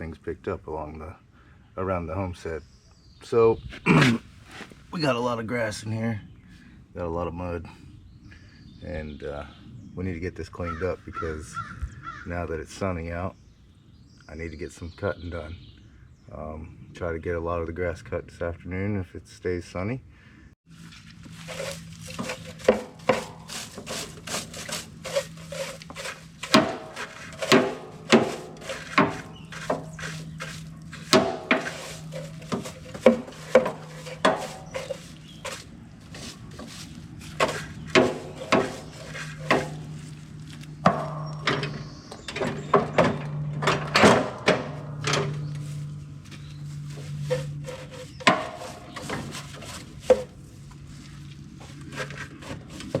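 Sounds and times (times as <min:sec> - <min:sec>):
scraping strokes and knocks: 0:20.7 - 0:53.0.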